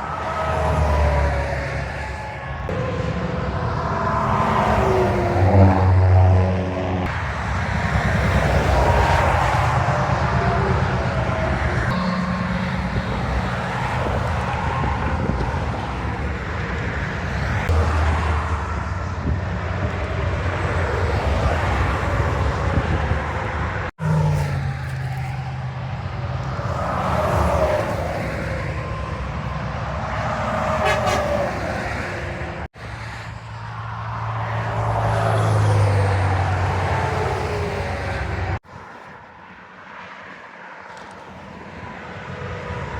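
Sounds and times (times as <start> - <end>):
low engine drone: 0.0 - 31.0
highway traffic tyre noise: 0.0 - 42.9.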